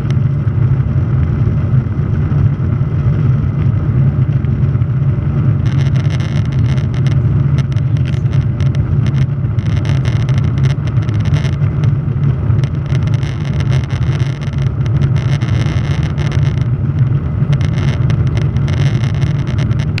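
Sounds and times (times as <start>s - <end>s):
crackling hiss: 5.4s - 20.0s.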